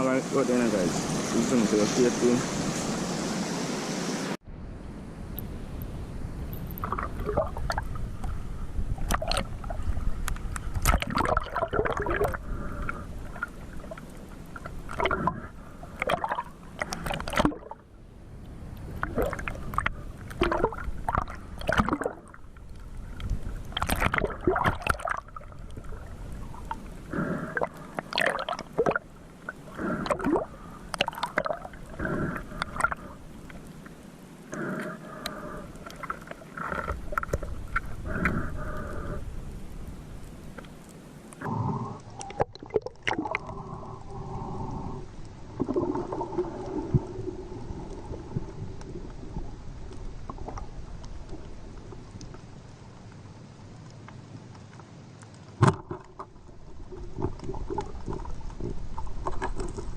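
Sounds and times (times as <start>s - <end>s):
water sloshing and gurgling: 6.3s - 59.9s
splashes: 6.7s - 8.0s, 9.0s - 10.0s, 10.6s - 17.8s, 18.8s - 33.8s, 42.2s - 43.6s.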